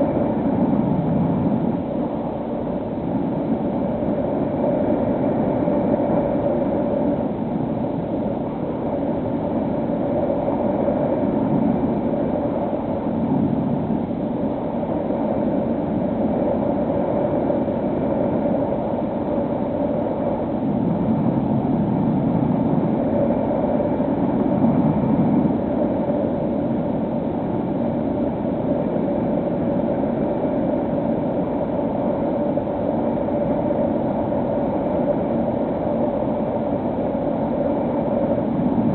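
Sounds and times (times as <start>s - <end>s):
wind rush: 0.0s - 38.9s.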